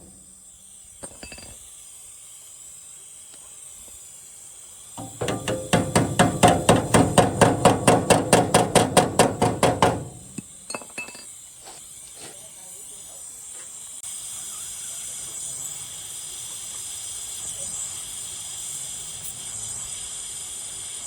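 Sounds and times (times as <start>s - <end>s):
rapid hammer blows on metal: 5.0s - 10.5s.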